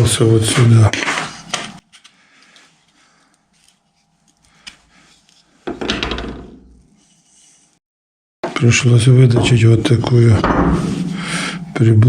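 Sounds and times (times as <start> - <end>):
rub and knock: 0.4 - 1.8, 6.6 - 7.8
small parts handling noises: 1.0 - 7.7.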